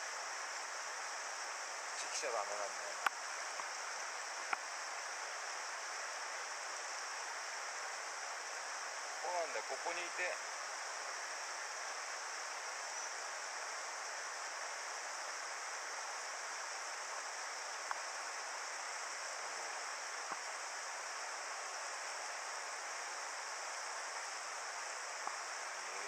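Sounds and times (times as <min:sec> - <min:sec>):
faint clicks: 0:03.0 - 0:03.7, 0:04.5 - 0:04.7, 0:17.8 - 0:18.0, 0:20.3 - 0:20.5.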